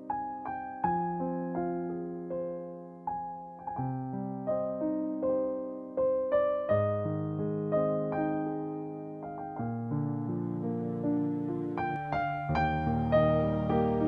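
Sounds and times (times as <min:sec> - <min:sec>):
gentle piano notes: 0:00.0 - 0:14.0.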